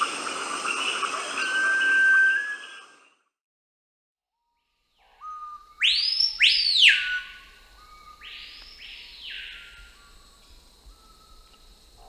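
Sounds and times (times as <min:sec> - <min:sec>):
low steady whistled notes: 0:00.0 - 0:03.1
bird whistles sweeping up: 0:00.7 - 0:03.1, 0:05.2 - 0:07.4.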